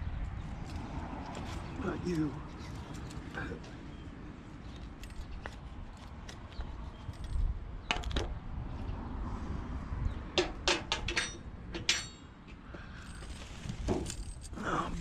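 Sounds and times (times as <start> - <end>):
metal scrap clanking and rattling: 10.4 - 12.3.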